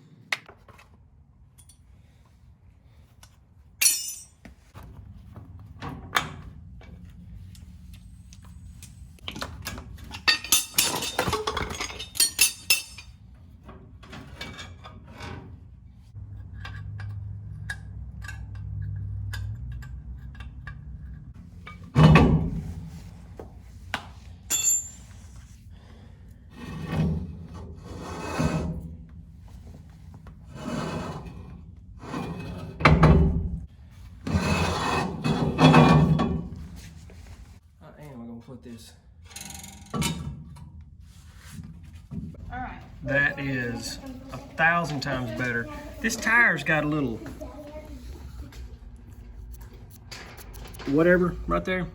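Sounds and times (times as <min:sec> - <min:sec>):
tools being handled: 0:03.2 - 0:04.7, 0:08.4 - 0:13.3, 0:48.0 - 0:51.3
low hum: 0:46.8 - 0:51.9.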